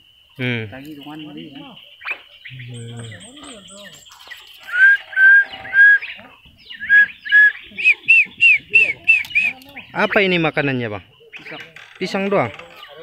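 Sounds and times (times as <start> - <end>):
bird whistling descending notes: 4.6 - 9.6.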